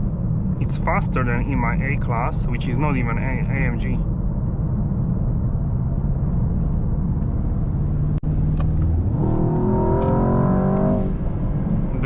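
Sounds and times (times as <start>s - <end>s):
car engine accelerating hard: 6.4s - 12.0s.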